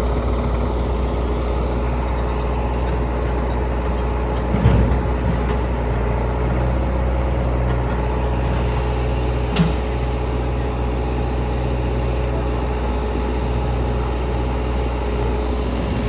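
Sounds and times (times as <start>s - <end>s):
backhoe diesel engine running: 0.0s - 16.0s.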